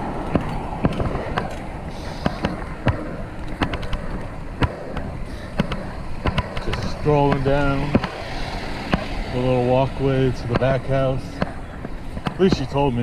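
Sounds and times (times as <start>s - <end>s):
tyres rumbling on pavement: 0.0s - 13.0s
wind on microphone: 0.0s - 13.0s
sharp clicks and knocks: 0.2s - 8.2s, 10.5s - 13.0s.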